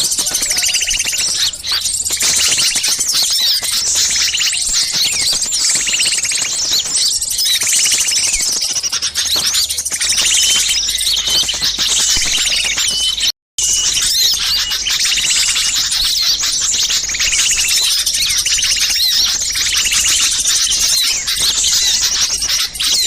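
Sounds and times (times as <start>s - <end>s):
songbirds chirping chorus: 0.0s - 23.0s.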